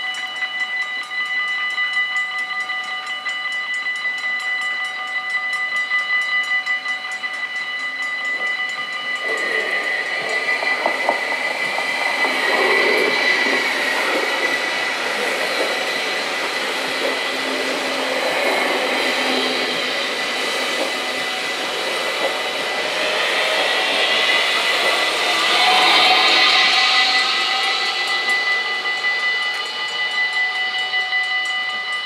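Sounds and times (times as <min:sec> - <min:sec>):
crossing warning bells ringing: 0:00.0 - 0:32.0
train wheels rumbling: 0:06.8 - 0:32.0.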